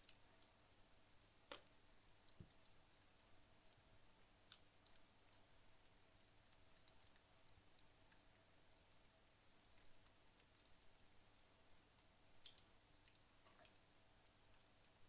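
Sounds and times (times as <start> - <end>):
logs crackling and popping: 1.4 - 5.9, 9.7 - 15.0.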